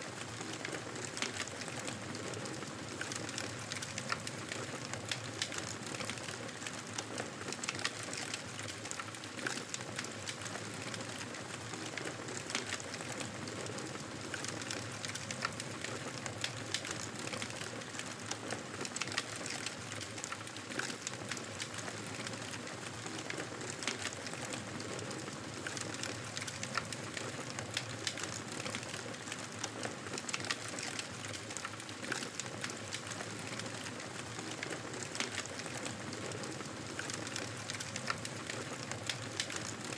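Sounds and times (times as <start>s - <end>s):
campfire crackling: 18.9s - 39.9s.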